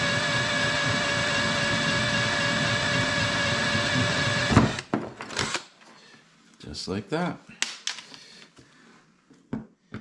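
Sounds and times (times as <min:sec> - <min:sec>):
drill knock: 0:00.0 - 0:05.6
electric drill whining: 0:00.0 - 0:05.6.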